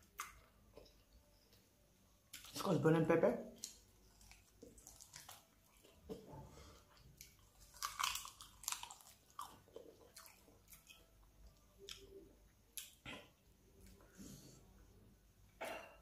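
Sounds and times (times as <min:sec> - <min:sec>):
person chewing and biting: 0:03.6 - 0:13.1.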